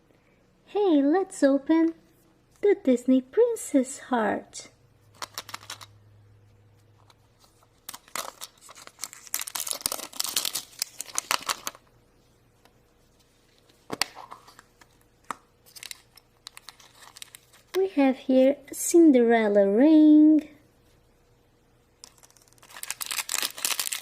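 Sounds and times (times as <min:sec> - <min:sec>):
wrapper tearing and crinkling: 0:07.8 - 0:11.8, 0:15.6 - 0:17.7, 0:22.0 - 0:24.0.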